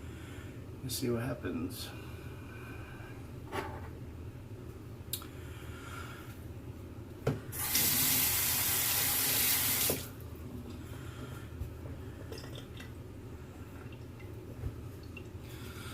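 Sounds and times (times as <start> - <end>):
sink tap running: 7.6 - 10.1.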